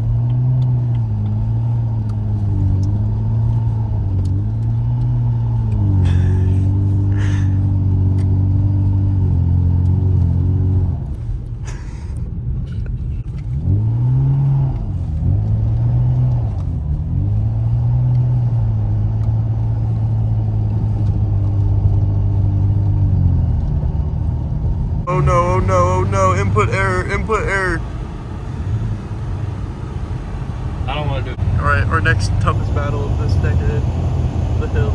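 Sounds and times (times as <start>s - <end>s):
car engine revving: 0.0s - 12.0s, 12.6s - 34.9s.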